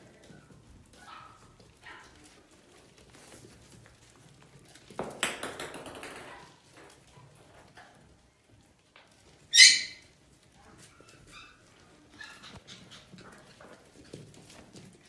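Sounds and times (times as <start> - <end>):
puppies scuffling: 0.0 - 15.0
puppies yipping: 0.2 - 2.3, 9.3 - 14.3.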